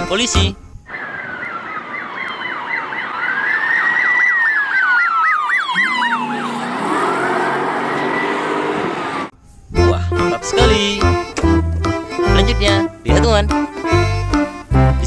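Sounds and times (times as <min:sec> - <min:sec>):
police siren yelping and wailing: 0:00.9 - 0:09.3.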